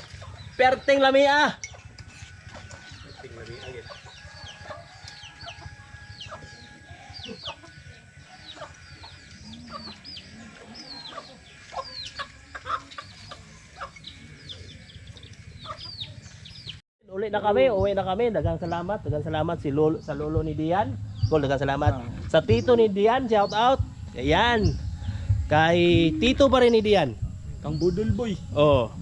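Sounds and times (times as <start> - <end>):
chicken high chirps: 8.4 - 14.8, 15.6 - 16.8.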